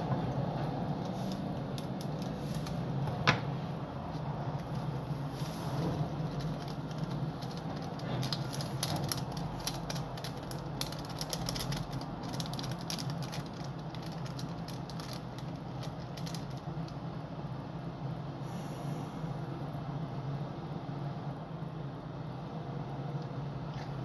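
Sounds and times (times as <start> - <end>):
plastic packet crinkling: 0.0 - 3.2, 4.4 - 17.1
steady low hum: 0.0 - 24.0.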